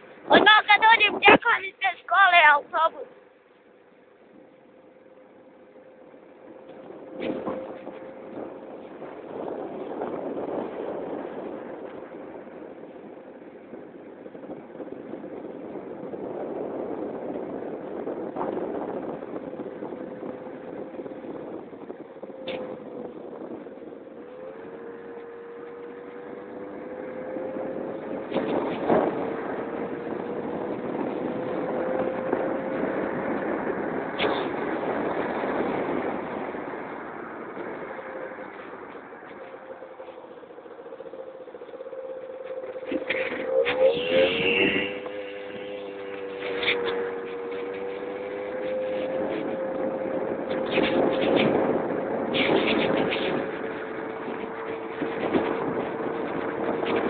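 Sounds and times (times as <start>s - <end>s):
wind noise on microphone: 0.0s - 3.2s, 4.2s - 57.0s
scooter engine running: 13.6s - 57.0s.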